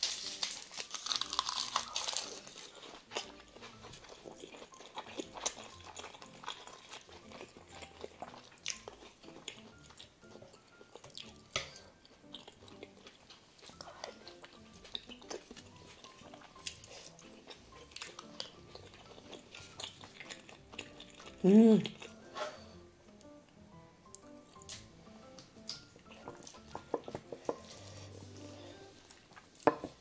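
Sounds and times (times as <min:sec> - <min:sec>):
seaweed wrap crackling: 0:00.0 - 0:09.4
soft background music: 0:00.0 - 0:30.0
wet chewing with smacks: 0:01.7 - 0:22.3.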